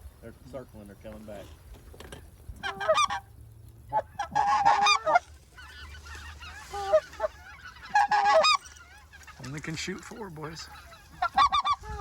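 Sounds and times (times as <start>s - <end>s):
goose calls: 2.6s - 3.3s, 3.9s - 12.0s.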